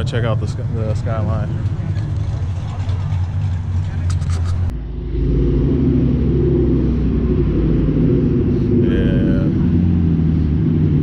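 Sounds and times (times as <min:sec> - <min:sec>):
car engine idling lumpy: 0:00.0 - 0:05.1.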